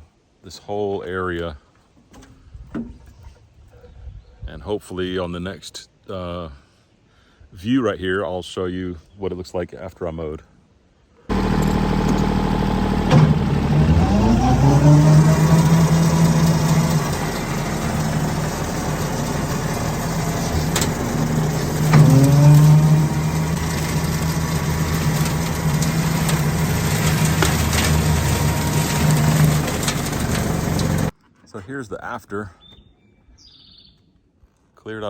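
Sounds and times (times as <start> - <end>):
tractor engine revving: 11.3 - 31.1
brush cracking: 14.8 - 31.1.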